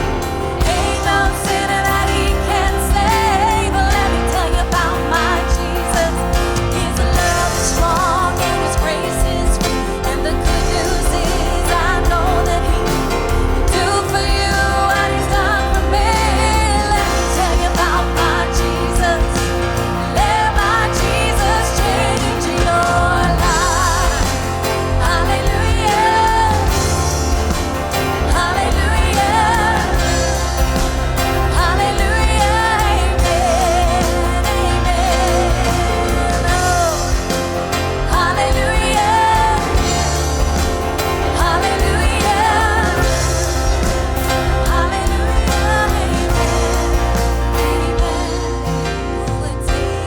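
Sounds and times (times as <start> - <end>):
people singing: 0.0 - 50.0
worship band playing: 0.0 - 50.0.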